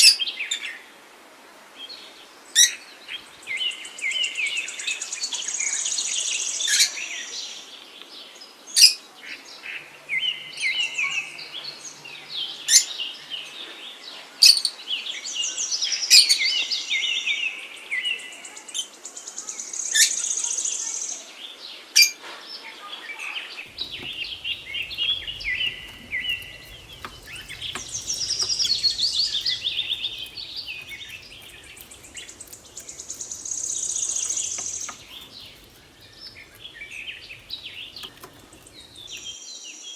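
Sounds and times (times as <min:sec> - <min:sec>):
birds trilling and warbling: 0:23.7 - 0:39.4.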